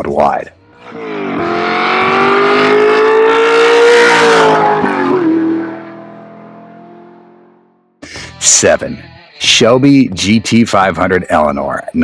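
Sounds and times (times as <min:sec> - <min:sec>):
car engine accelerating: 0:00.6 - 0:07.9.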